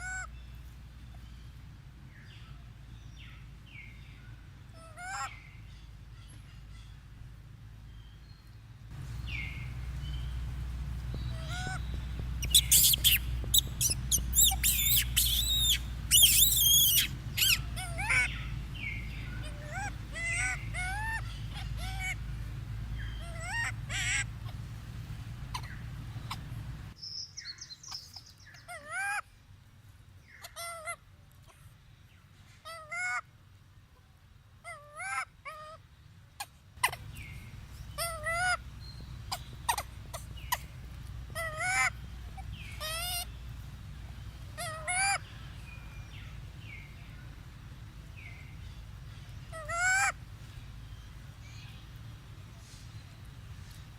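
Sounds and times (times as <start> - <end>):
monkeys squealing and crying: 4.8 - 5.3, 11.3 - 11.8, 12.4 - 18.6, 19.3 - 22.2, 23.1 - 24.6, 25.5 - 26.5, 34.7 - 35.8, 36.8 - 37.3, 37.9 - 38.6, 39.2 - 43.4, 44.5 - 45.2, 49.5 - 50.2
low hum: 5.4 - 27.0.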